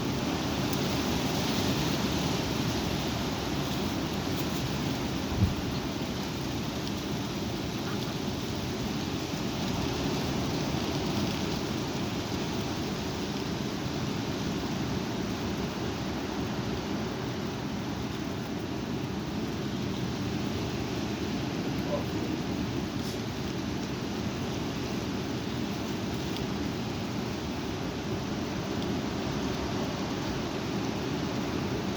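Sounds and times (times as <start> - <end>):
high wind blowing: 0.0 - 12.2
wind gusts rumbling on microphone: 0.0 - 31.9.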